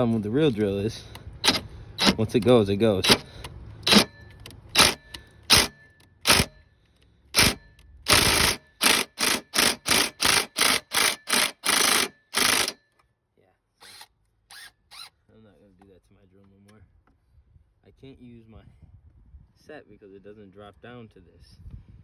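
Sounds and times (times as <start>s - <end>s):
cordless drill bursts on bolt: 1.4s - 2.4s, 3.0s - 6.6s, 7.3s - 12.8s, 13.8s - 15.2s.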